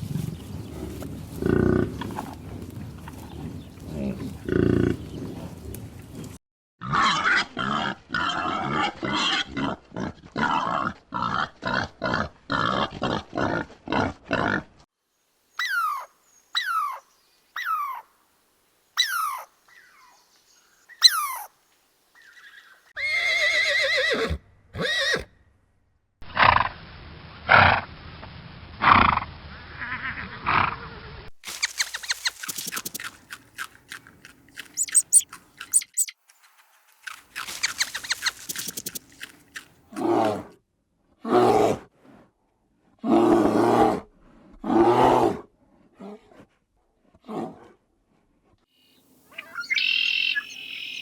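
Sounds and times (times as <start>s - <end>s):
animal grunting: 0.7s - 5.6s
short falling animal calls: 31.5s - 33.1s, 34.8s - 36.1s
loud repeated animal calls: 34.6s - 36.1s, 37.4s - 39.3s
wavering animal call: 34.6s - 36.1s, 37.5s - 39.0s.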